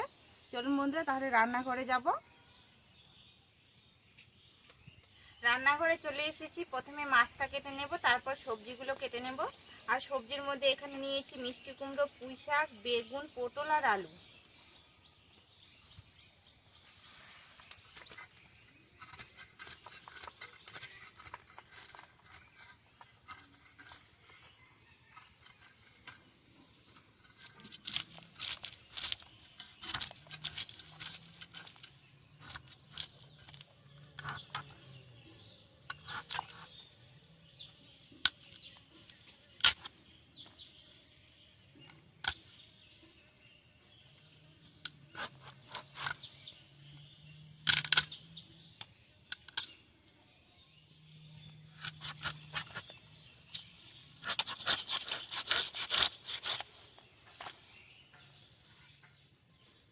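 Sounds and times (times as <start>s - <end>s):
knife clicking and scraping fish: 26.9s - 34.8s, 51.8s - 52.9s, 53.5s - 56.7s.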